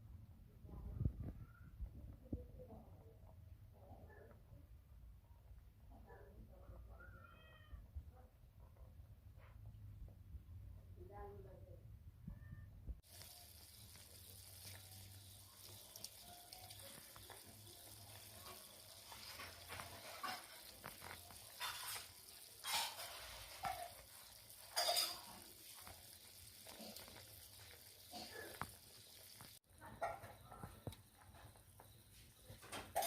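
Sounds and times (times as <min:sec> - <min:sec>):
chicken sizzling in a pot: 0:13.0 - 0:33.0.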